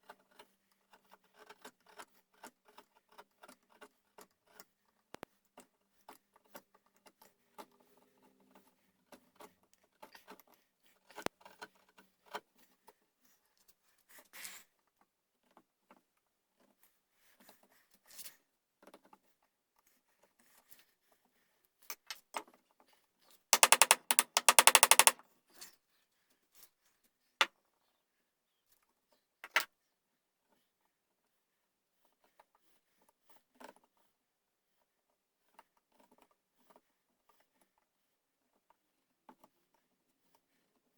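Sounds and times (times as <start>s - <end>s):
hand tools tapping wood: 23.6s - 25.2s
loud rapid rattle: 23.6s - 25.2s
sharp single clicks: 23.6s - 25.2s.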